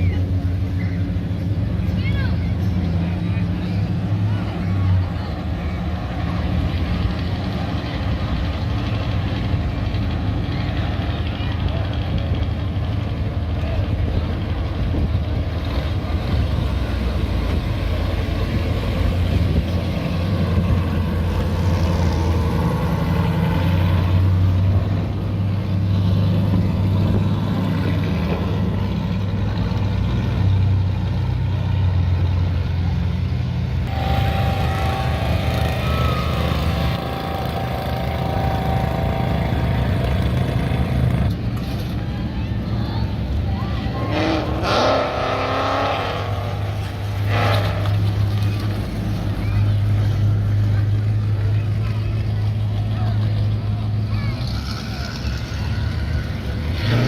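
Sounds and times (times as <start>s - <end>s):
cars driving past: 0.0s - 57.0s
thin steady whine: 33.9s - 40.0s.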